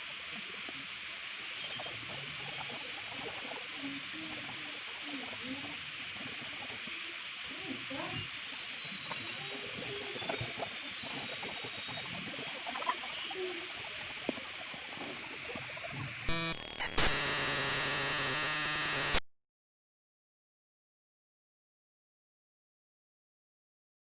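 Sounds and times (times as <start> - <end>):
harsh electronic tones: 16.3 - 19.3.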